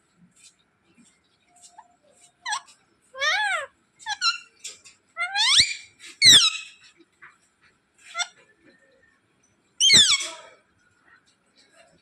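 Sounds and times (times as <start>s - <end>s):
parrot squeaky calls: 2.4s - 6.9s, 9.8s - 10.4s.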